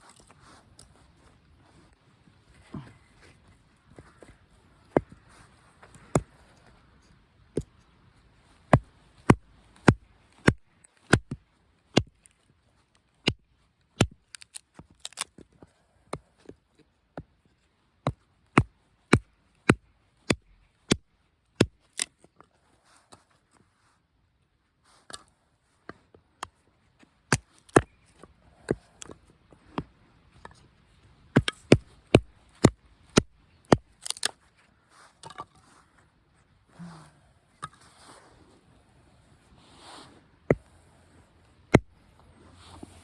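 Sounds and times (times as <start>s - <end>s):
wood chopping strikes: 8.7s - 11.4s, 12.0s - 12.3s, 14.0s - 15.2s, 31.3s - 34.4s, 41.7s - 41.9s.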